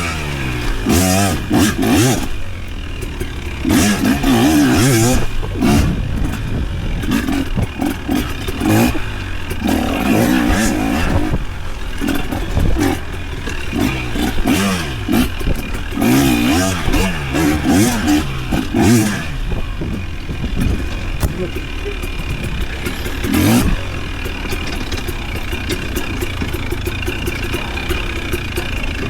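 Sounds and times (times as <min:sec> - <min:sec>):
clattering of vehicle and brush: 0:00.0 - 0:29.0
off-road vehicle engine revving: 0:00.0 - 0:29.0.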